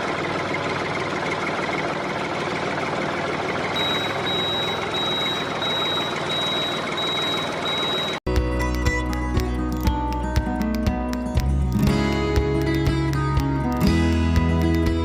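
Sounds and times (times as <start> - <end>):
high reversing beep: 3.8 - 8.2
music: 8.3 - 15.0.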